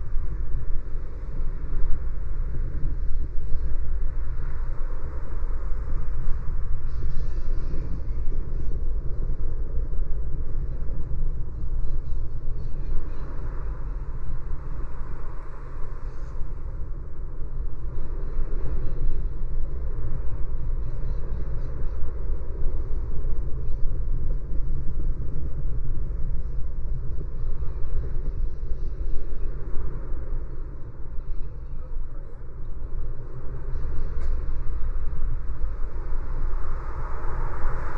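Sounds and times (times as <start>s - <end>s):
car road noise rumble: 0.0s - 37.9s.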